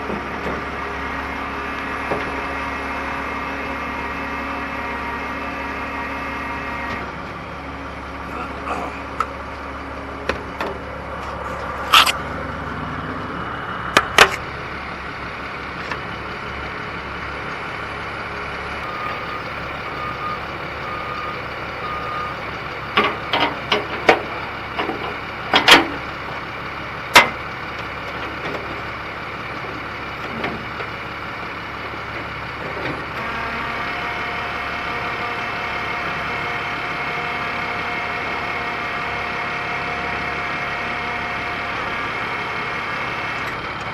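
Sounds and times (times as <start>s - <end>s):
excavator diesel engine: 0.0s - 43.9s
backup alarm beeps: 18.8s - 22.5s.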